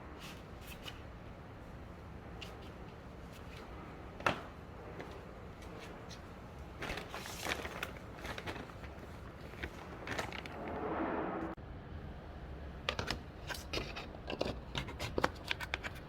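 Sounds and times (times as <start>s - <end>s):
clicks and knocks of handling: 12.9s - 16.0s.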